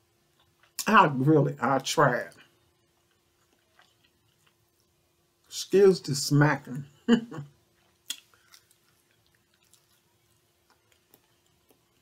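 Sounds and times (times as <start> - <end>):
faint steady hum: 0.0 - 12.0
person chewing with lip smacks: 2.9 - 4.9, 7.7 - 12.0.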